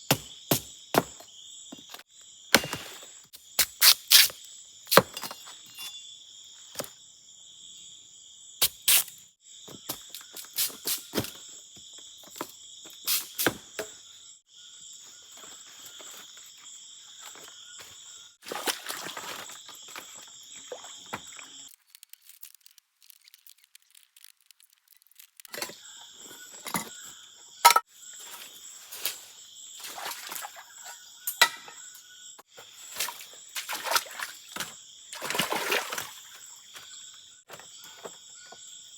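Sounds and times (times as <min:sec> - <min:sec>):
insect chorus: 0:00.0 - 0:38.9
sharp clicks and cracks: 0:21.7 - 0:25.5.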